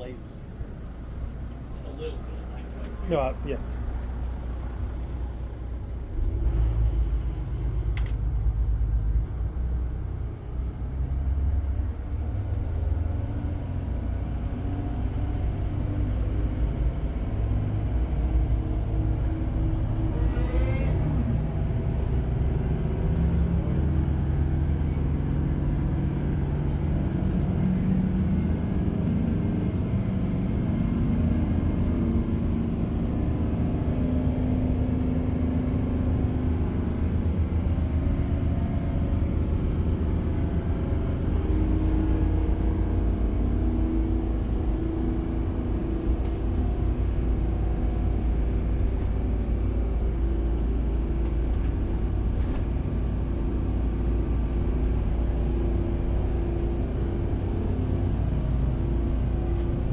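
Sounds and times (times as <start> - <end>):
boat engines droning at full throttle: 0.0 - 59.9
high engine whine: 14.5 - 59.9.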